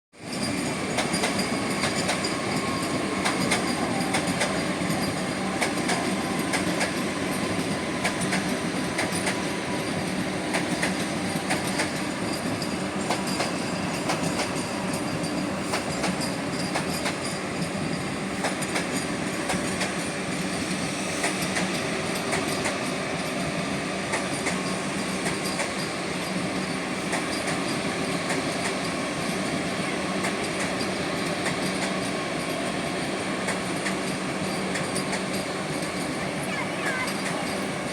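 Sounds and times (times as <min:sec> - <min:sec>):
steel wheels squealing on rails: 0:00.2 - 0:37.9
train rolling: 0:00.2 - 0:37.9.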